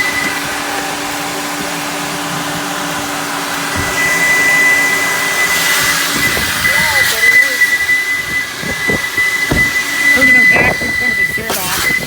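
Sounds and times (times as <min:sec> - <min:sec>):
vacuum air rush: 0:00.0 - 0:12.0
high piercing whistle: 0:03.8 - 0:12.0.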